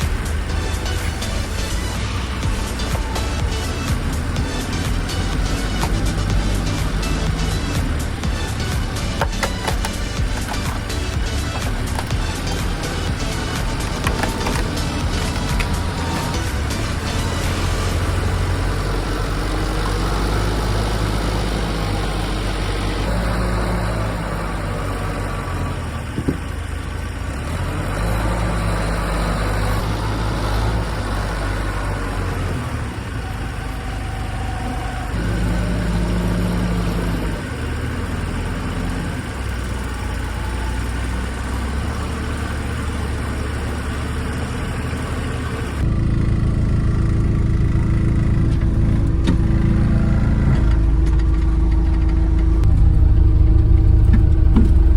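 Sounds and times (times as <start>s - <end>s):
machinery engine running: 0.0s - 54.9s.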